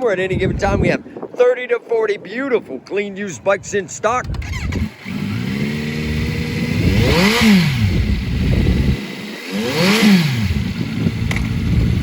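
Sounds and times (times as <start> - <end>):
motorcycle engine revving: 4.3 - 12.0.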